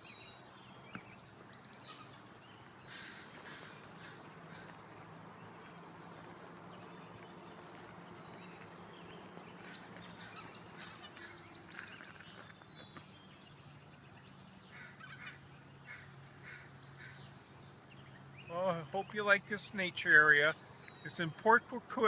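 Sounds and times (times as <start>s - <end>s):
faint bird chirps and calls: 0.0s - 22.0s.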